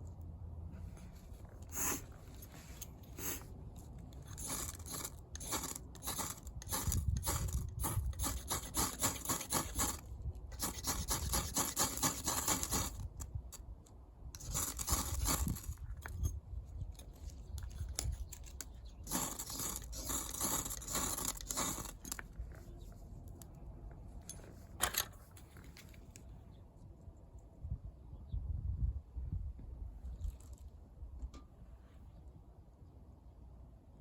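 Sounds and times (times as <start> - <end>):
rapid scraping strokes: 4.2 - 13.1, 14.4 - 16.2, 18.0 - 22.8.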